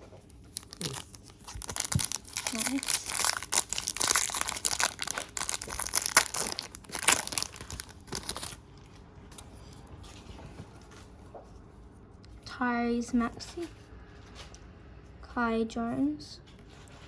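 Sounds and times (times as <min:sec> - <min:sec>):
foil wrapper crinkling and tearing: 0:00.5 - 0:08.6.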